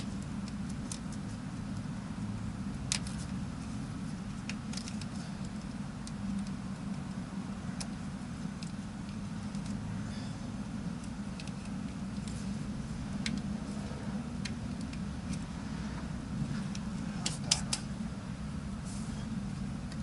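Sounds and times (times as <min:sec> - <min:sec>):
small clicks and taps on wiring: 0:00.0 - 0:01.9, 0:02.7 - 0:09.8, 0:11.0 - 0:12.4, 0:13.2 - 0:13.5, 0:14.4 - 0:15.4
low engine hum: 0:00.0 - 0:20.0.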